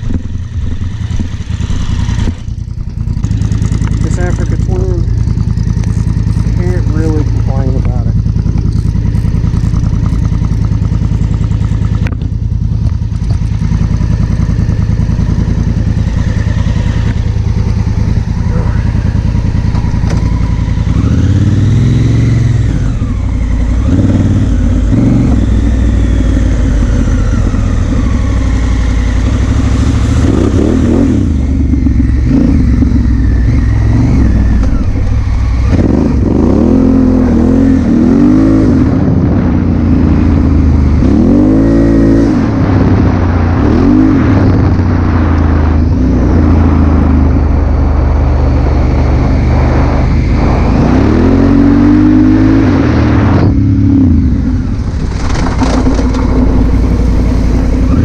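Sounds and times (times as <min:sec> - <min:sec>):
motorcycle engine running: 0:00.0 - 0:58.0
wind noise on microphone: 0:30.2 - 0:58.0.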